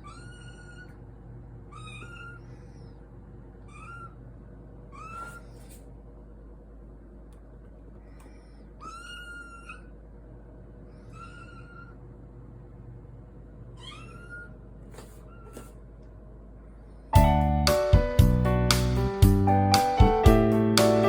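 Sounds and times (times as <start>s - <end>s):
kitten mewing: 0.0s - 1.0s, 1.7s - 2.8s, 3.6s - 4.2s, 4.9s - 5.7s, 8.8s - 10.0s, 11.0s - 12.0s, 13.8s - 14.6s.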